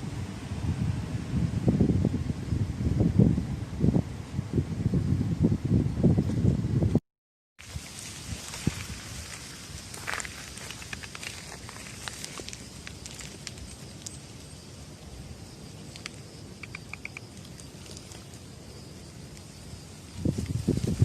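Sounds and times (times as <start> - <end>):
wind hiss: 0.0 - 7.0, 7.6 - 21.0
light rain: 7.6 - 20.7
small ticks: 8.5 - 14.5, 15.8 - 18.5.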